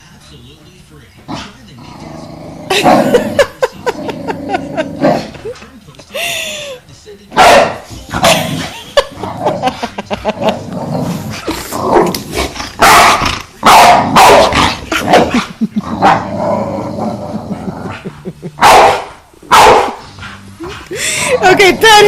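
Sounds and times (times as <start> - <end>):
dog growling: 1.3 - 5.5, 7.6 - 21.6
dog barking loudly: 7.4 - 8.4, 12.8 - 15.3, 18.6 - 20.0.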